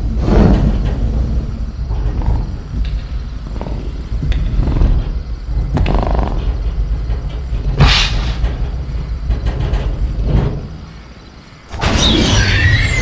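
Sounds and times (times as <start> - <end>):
cage creaking and knocking: 0.0 - 13.0
short hissing burst: 7.8 - 8.4.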